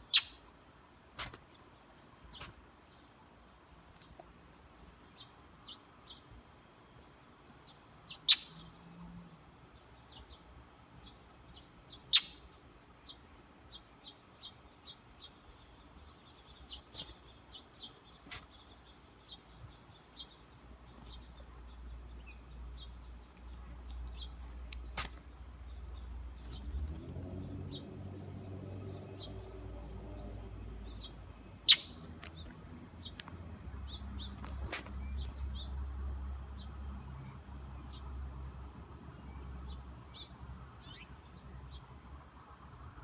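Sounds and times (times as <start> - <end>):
bird chirping: 0.0 - 0.4, 6.9 - 9.2, 11.0 - 38.3.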